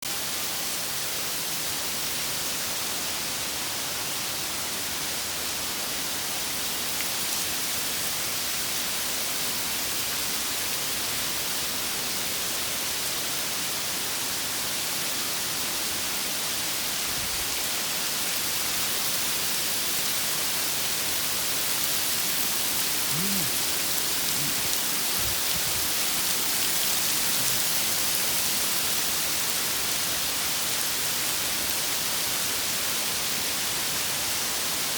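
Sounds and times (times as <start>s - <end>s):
heavy rain pouring: 15.8s - 34.9s.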